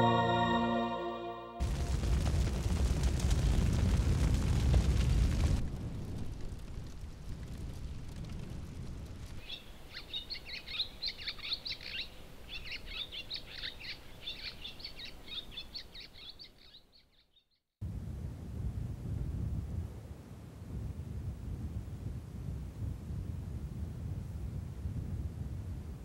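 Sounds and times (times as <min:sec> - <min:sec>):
low wind-like rushing: 0:01.6 - 0:09.4
fire rumbling: 0:01.6 - 0:09.9
small birds twittering: 0:09.4 - 0:17.4.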